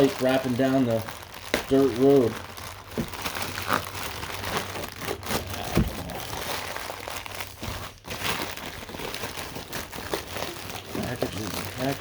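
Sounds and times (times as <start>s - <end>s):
packaging crinkling: 0.0s - 12.0s
thump: 5.7s - 6.1s.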